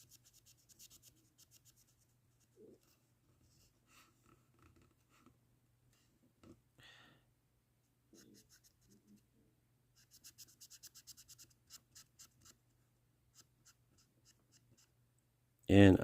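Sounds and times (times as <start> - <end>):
marker strokes on plastic part: 0.0 - 3.0, 8.1 - 9.2, 10.0 - 12.6, 13.3 - 14.9.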